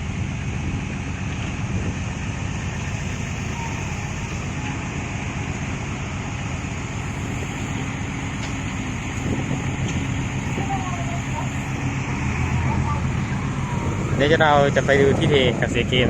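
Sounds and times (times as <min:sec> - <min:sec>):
diesel truck engine running: 0:00.0 - 0:16.0
road noise: 0:00.0 - 0:16.0.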